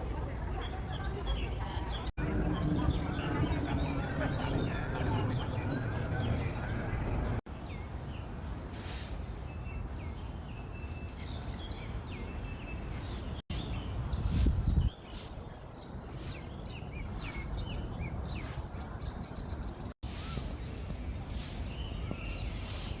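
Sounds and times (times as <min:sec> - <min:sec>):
low rumble: 0:02.2 - 0:07.4
small birds chirping: 0:09.3 - 0:23.0.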